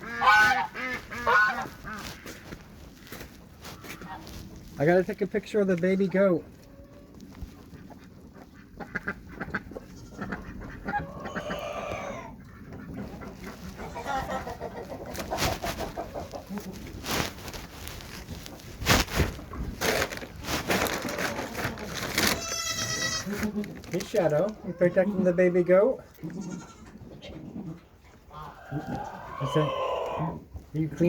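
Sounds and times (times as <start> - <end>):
drawn-out chicken call: 0.0 - 4.5, 6.6 - 17.3, 28.3 - 30.4
chickens clucking: 0.0 - 31.0.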